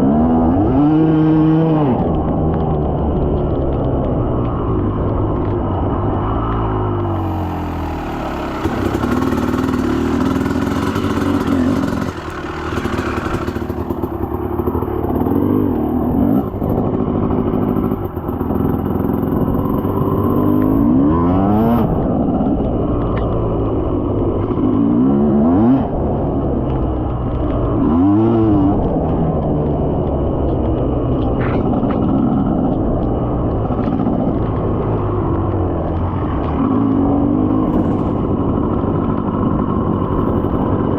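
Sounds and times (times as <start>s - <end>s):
dirt bike engine revving: 0.0s - 2.3s, 6.2s - 22.3s, 24.5s - 26.2s, 27.6s - 29.1s.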